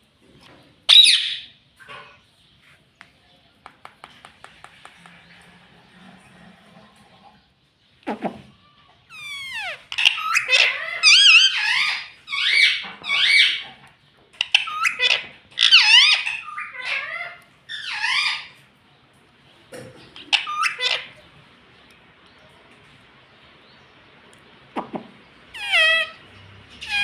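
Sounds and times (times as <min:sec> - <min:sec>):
parrot chattering: 0:09.1 - 0:13.8, 0:14.4 - 0:18.6, 0:20.1 - 0:21.3, 0:24.8 - 0:27.0.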